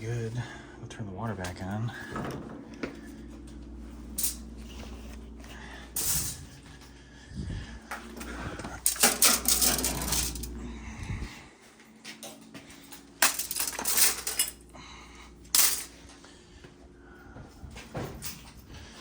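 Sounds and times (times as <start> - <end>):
metal clattering and clinking: 8.8 - 10.6, 12.2 - 14.6, 15.5 - 16.0.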